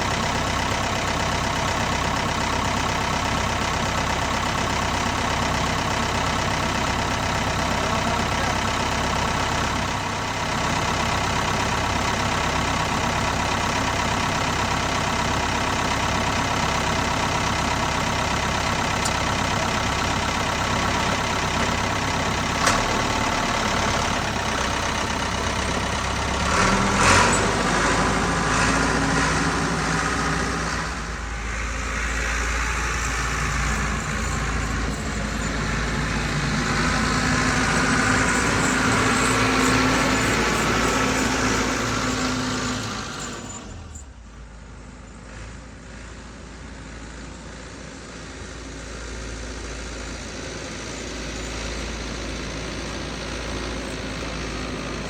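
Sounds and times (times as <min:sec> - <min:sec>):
clatter: 0:00.0 - 0:29.6, 0:32.6 - 0:44.2
tractor engine running: 0:00.0 - 0:55.0.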